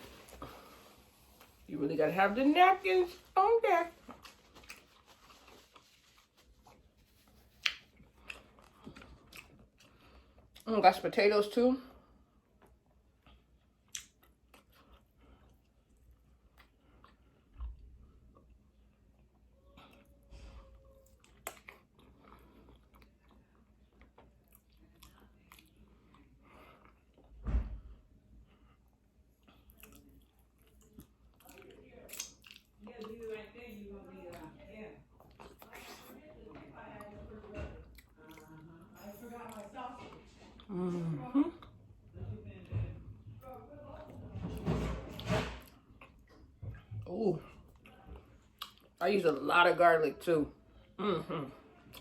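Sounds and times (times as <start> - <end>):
chewing and biting food: 4.0 - 10.7, 12.5 - 20.1, 21.1 - 27.4, 28.7 - 33.3, 47.6 - 49.0
mouth eating smacks and clicks: 7.5 - 9.9, 13.2 - 15.0, 29.8 - 32.7.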